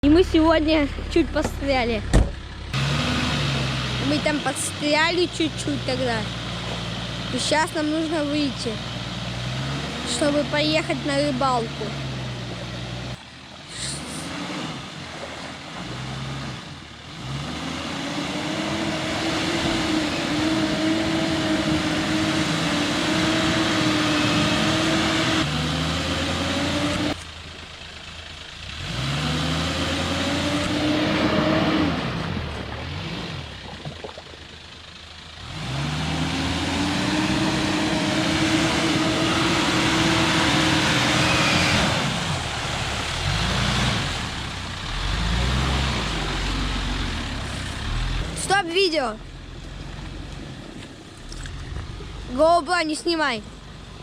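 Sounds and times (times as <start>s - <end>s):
truck engine revving hard: 0.0s - 27.3s, 28.3s - 33.8s, 35.3s - 49.6s.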